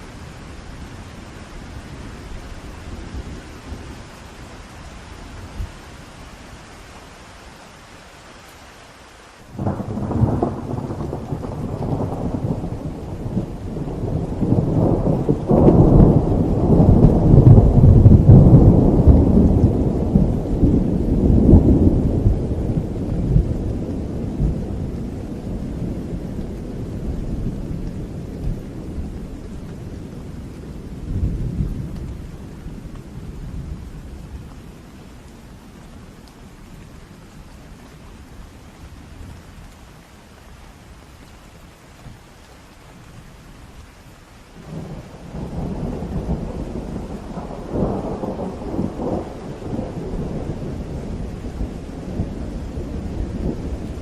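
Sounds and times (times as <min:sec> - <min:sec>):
steady rain: 0:00.0 - 0:54.0
thunder rolling: 0:09.6 - 0:26.1, 0:44.6 - 0:54.0.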